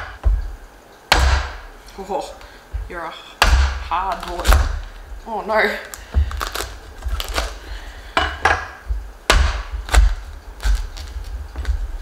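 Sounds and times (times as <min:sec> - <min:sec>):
knife cracking squash rind: 0:05.8 - 0:07.6, 0:09.3 - 0:11.8.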